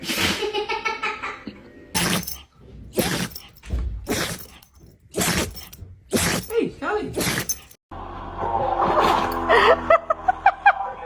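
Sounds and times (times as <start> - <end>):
dog sneezing: 0.0 - 0.4, 2.0 - 7.7
dog vocal sound: 2.0 - 7.8.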